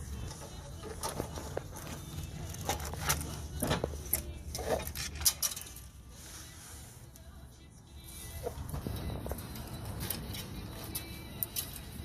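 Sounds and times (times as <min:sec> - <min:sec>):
metal tools clicking and clattering: 0:00.2 - 0:06.0.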